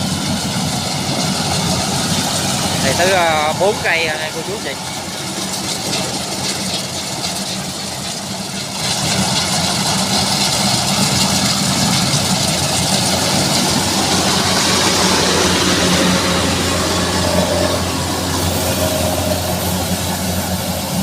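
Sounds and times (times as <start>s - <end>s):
combine harvester engine running: 0.0s - 21.0s
rushing hiss: 9.0s - 21.0s.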